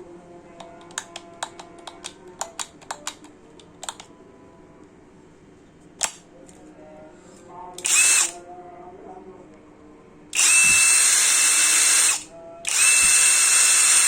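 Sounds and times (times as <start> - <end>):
sharp clicks and taps: 0.6 - 4.1.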